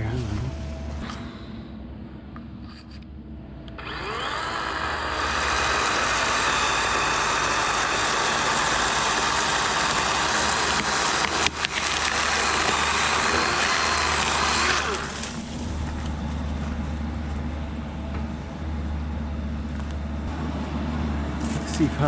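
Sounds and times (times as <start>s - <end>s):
diesel engine idling: 0.0s - 22.0s
chainsaw cutting wood: 3.8s - 16.2s.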